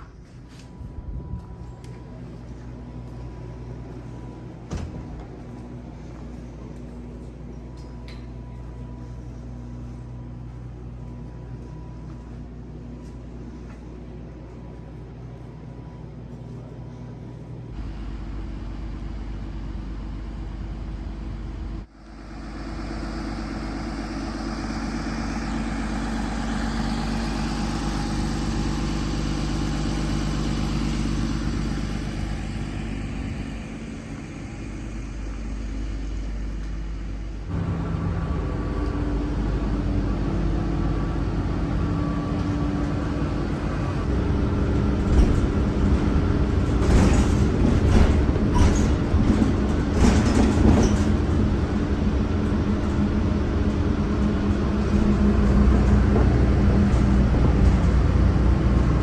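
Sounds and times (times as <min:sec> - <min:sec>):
bus engine running: 0:17.5 - 0:59.0.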